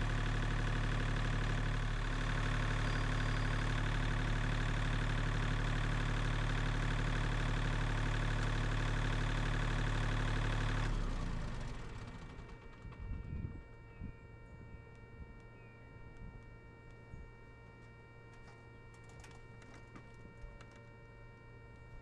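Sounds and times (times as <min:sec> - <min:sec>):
engine idling: 0:00.0 - 0:17.3.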